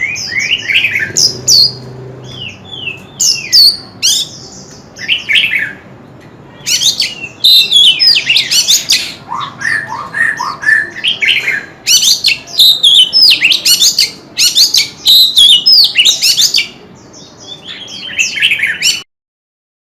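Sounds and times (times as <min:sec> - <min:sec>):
bird singing whistled notes: 0:06.7 - 0:19.1.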